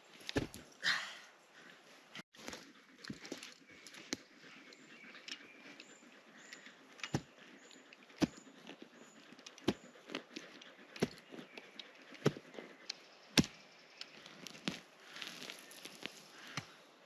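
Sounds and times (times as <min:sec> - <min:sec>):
blade chopping wood: 0:13.3 - 0:13.6.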